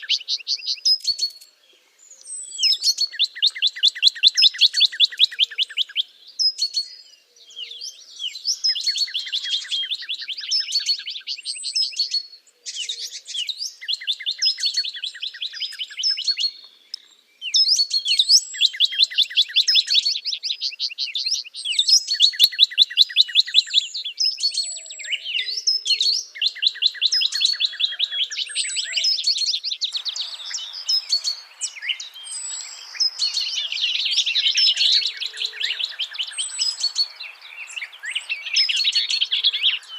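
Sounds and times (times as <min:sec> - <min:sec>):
songbirds singing trills: 0:00.0 - 0:39.9.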